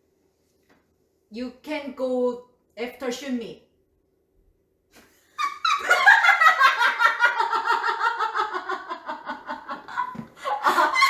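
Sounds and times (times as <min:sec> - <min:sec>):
woman laughing: 0:05.4 - 0:11.0.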